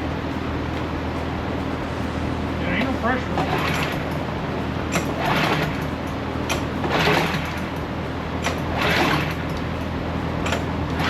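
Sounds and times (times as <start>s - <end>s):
small engine running: 4.9s - 11.0s.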